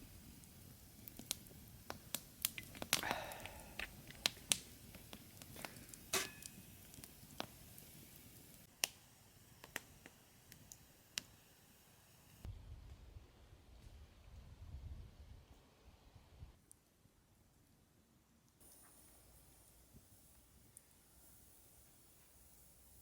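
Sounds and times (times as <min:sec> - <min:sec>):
campfire crackling and popping: 0:00.0 - 0:11.8.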